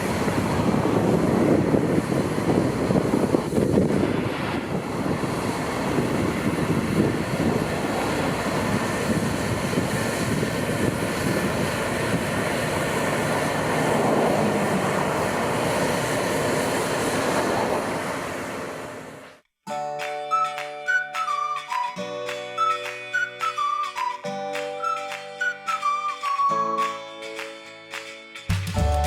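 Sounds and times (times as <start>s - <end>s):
heavy farm machinery running: 0.0s - 19.3s.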